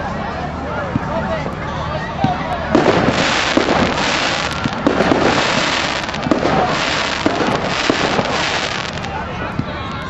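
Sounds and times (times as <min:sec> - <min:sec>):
fireworks crackling: 0:02.7 - 0:09.4
sharp firework pops: 0:02.8 - 0:09.2.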